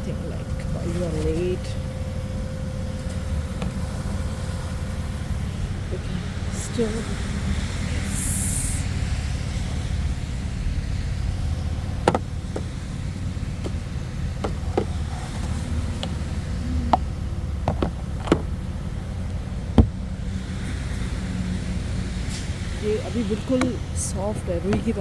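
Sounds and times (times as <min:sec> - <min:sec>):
car engine idling: 0:00.0 - 0:25.0
sharp taps and knocks: 0:12.0 - 0:12.7.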